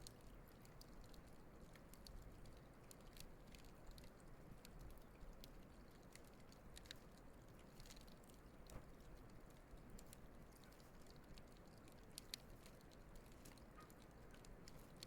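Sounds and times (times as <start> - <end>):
campfire crackling: 0.4 - 15.0.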